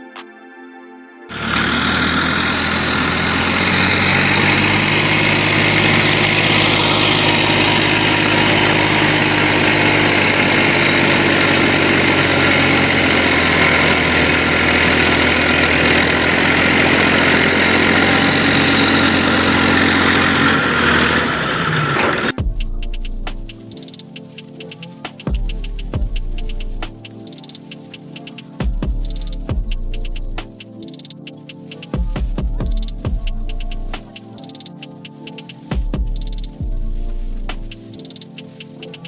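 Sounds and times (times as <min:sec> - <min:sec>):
tractor engine idling: 0:01.3 - 0:23.7, 0:25.4 - 0:27.2, 0:28.9 - 0:30.6.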